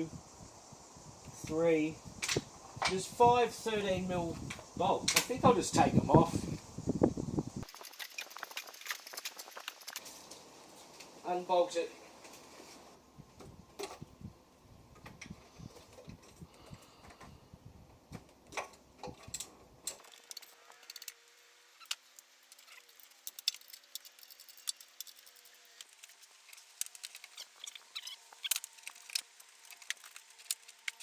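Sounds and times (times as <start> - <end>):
hand tools clicking and rattling: 19.2 - 21.2, 21.8 - 31.0.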